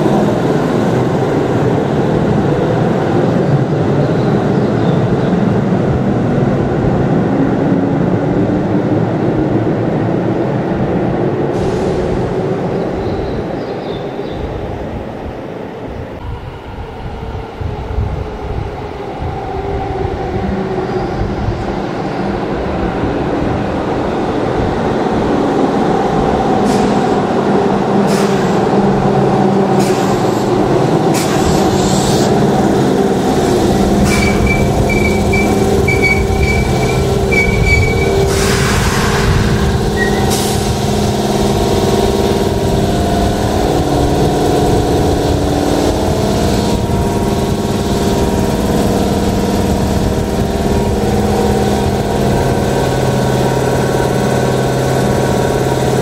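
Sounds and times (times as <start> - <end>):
electric train running: 24.4 - 56.0
wheels clacking over rail joints: 29.7 - 56.0
hiss of air: 29.8 - 30.5, 31.1 - 32.4, 38.2 - 40.8
stuttering brake squeal: 31.2 - 32.4, 33.6 - 40.7.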